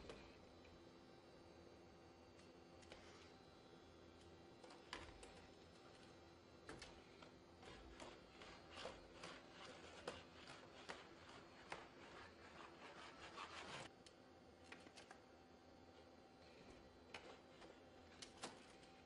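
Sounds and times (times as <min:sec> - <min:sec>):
robot scraping on hard floor: 0:07.6 - 0:13.9.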